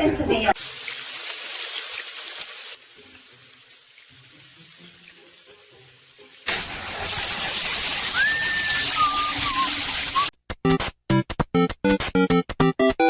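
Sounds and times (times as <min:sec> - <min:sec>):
tap water running into sink: 0:00.6 - 0:10.3.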